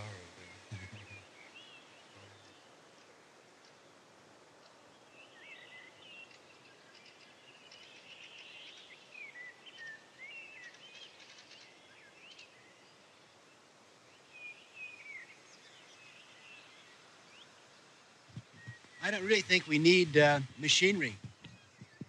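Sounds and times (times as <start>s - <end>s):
birds chirping and whistling: 0.0s - 2.6s, 5.2s - 12.7s, 18.4s - 22.0s
steady background hiss: 0.0s - 22.0s.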